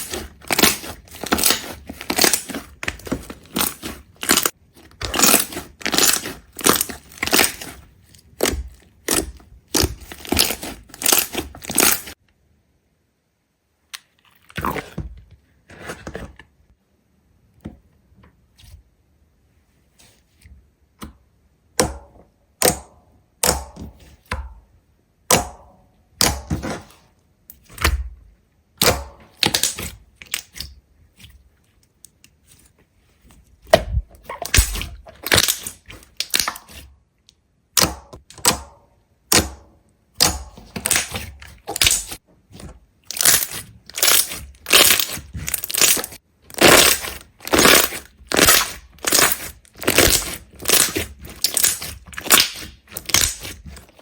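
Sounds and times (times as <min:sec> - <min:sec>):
sharp cracks and crunches: 0:00.0 - 0:12.2, 0:33.9 - 0:36.9, 0:40.2 - 0:54.0.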